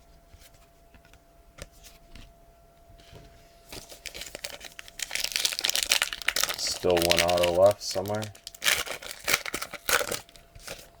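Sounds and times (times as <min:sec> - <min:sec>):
foil wrapper torn and crinkled: 0:03.8 - 0:10.8.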